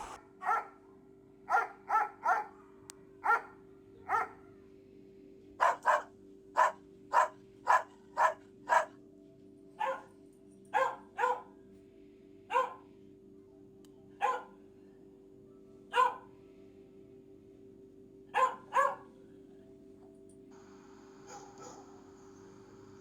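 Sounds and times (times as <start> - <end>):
dog barking: 0.0 - 0.8, 1.5 - 4.4, 5.6 - 9.0, 9.8 - 10.1, 10.7 - 11.6, 12.5 - 12.9, 14.2 - 14.6, 15.9 - 16.3, 18.3 - 19.1, 21.2 - 22.0.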